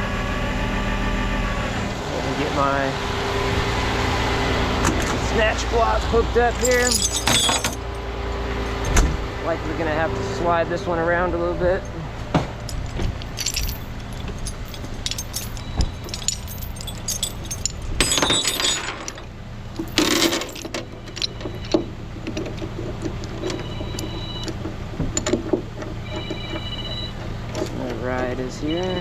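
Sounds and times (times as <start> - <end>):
metal chain clinking and rattling: 6.6 - 9.0, 11.9 - 21.8.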